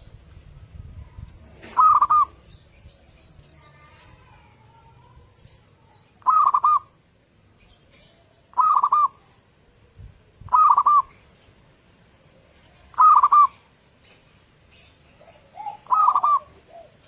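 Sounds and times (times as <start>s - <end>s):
dove cooing: 1.5s - 2.5s, 6.2s - 7.0s, 8.5s - 9.3s, 10.4s - 11.2s, 12.8s - 13.6s, 15.2s - 17.0s.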